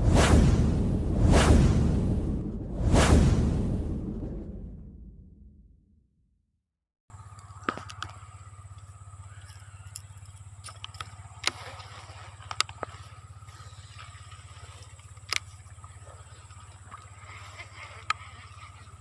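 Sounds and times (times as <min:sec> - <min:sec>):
low pulsing motor drone: 0:07.1 - 0:19.0.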